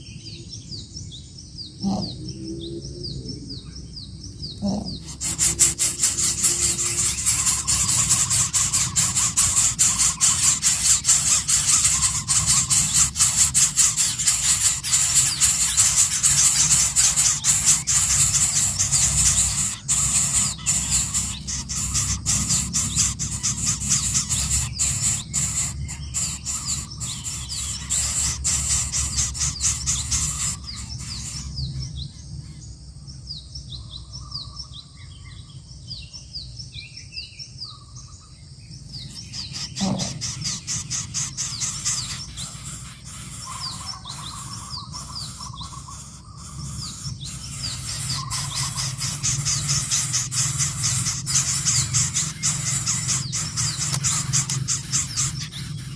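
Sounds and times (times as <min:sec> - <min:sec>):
chicks calling with harsh rasping: 0:01.6 - 0:32.8, 0:37.7 - 0:55.9.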